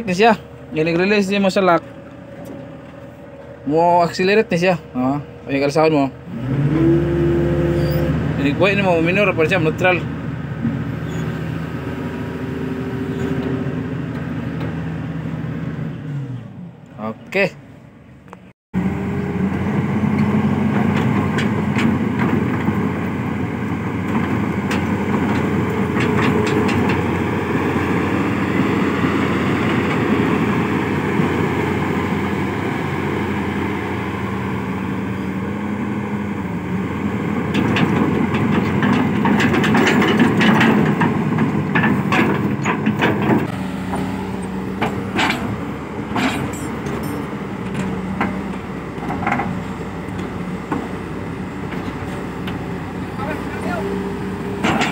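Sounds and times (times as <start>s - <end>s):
excavator diesel engine running: 0.0s - 16.8s, 18.8s - 54.9s
metallic clanks and rattles: 24.0s - 27.2s, 37.5s - 43.5s, 44.8s - 48.4s, 54.6s - 54.9s.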